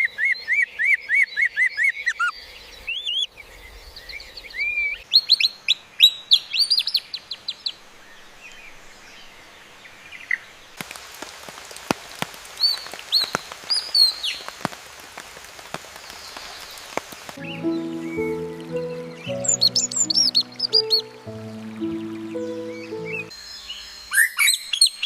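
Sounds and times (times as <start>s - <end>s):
songbird whistling: 17.4s - 23.3s.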